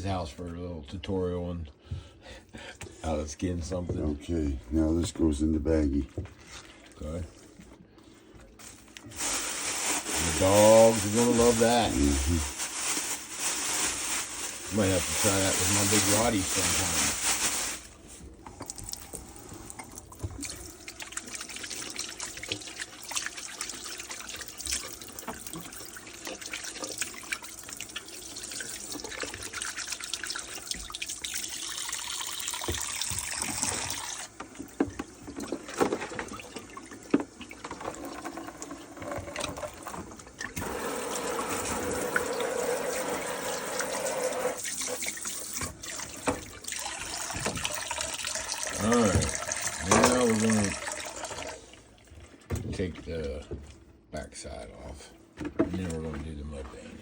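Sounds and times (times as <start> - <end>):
tap water running into sink: 10.2 - 12.4, 18.4 - 52.9.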